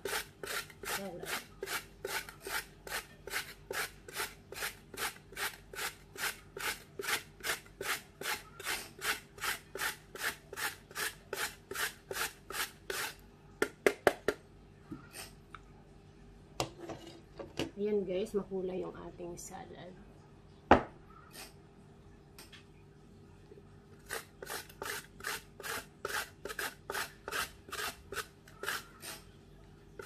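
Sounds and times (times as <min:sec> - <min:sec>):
carrot grating on metal grater: 0:00.0 - 0:13.2, 0:24.0 - 0:29.2.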